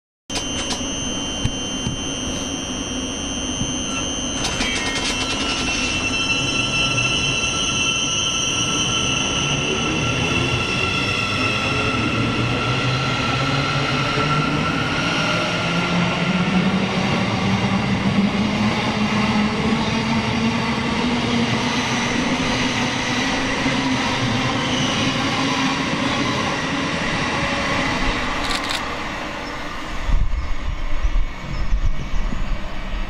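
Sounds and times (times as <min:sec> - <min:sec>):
high steady whine: 0:00.3 - 0:33.0
train running noise: 0:00.3 - 0:33.0.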